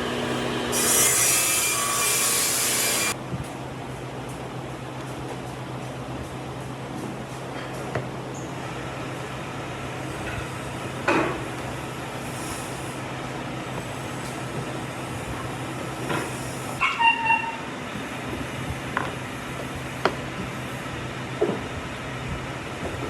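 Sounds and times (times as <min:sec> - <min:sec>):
steady machine hum: 0:00.0 - 0:05.0
short squeaks: 0:16.8 - 0:17.7.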